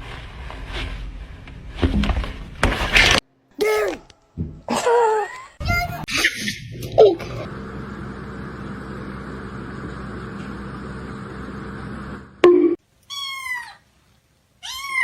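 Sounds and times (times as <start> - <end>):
cat meowing: 14.6 - 15.0.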